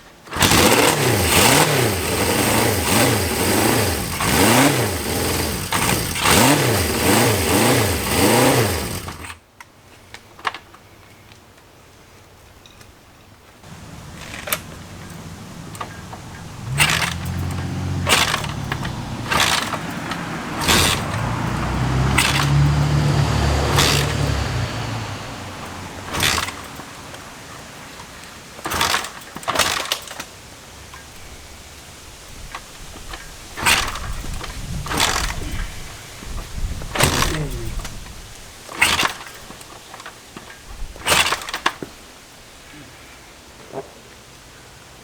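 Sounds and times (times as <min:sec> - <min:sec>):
motorcycle engine cranking: 0:00.3 - 0:09.4, 0:13.7 - 0:31.1, 0:32.5 - 0:42.0
sharp mechanical clacks: 0:00.3 - 0:09.4, 0:13.7 - 0:27.2, 0:28.6 - 0:30.3, 0:33.6 - 0:35.6, 0:36.8 - 0:38.1, 0:38.7 - 0:41.9.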